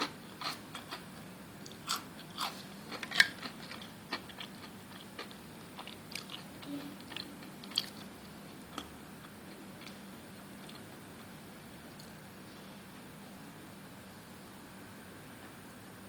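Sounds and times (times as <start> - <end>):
person chewing: 0.0 - 11.4.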